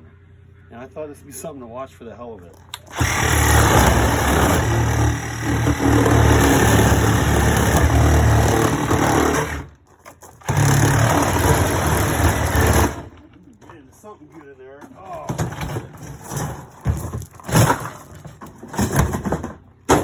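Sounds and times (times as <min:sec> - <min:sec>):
power tool cutting metal: 0:02.8 - 0:09.7, 0:10.4 - 0:13.1.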